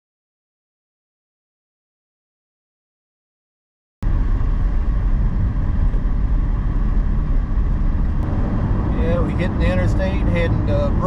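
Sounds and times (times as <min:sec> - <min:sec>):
car road and engine rumble: 0:04.0 - 0:11.0.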